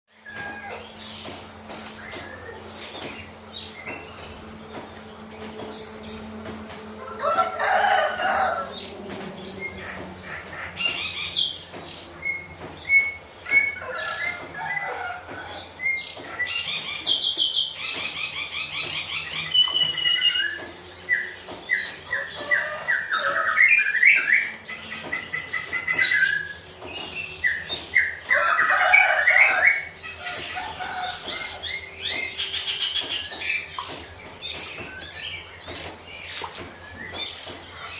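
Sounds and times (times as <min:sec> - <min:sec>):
bird chirping and calling: 0:00.1 - 0:37.9.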